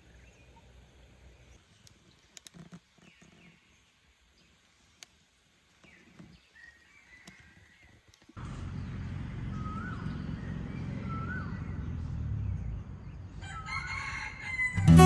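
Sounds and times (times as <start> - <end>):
roosters crowing: 13.4 - 15.0.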